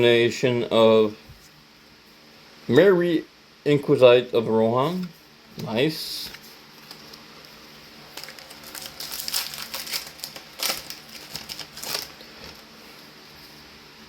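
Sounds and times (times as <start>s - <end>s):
trading cards crinkling and rustling: 4.9s - 13.1s.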